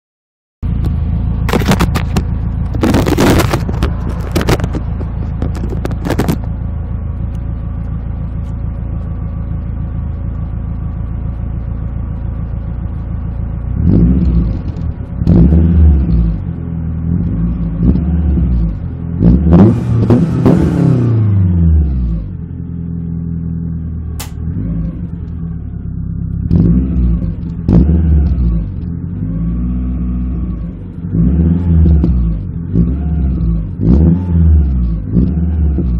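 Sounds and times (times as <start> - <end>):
car engine idling and revving: 0.6 - 35.9.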